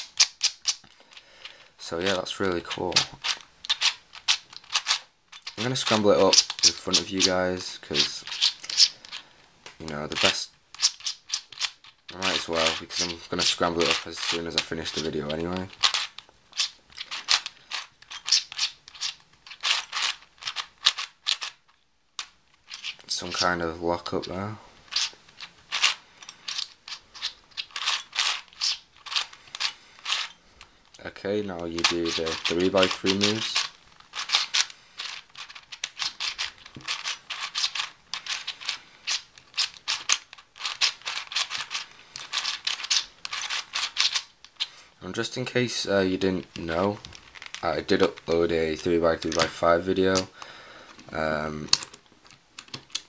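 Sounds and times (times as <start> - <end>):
plastic puzzle layers clicking: 0.0 - 30.3, 31.8 - 44.7, 46.5 - 53.0.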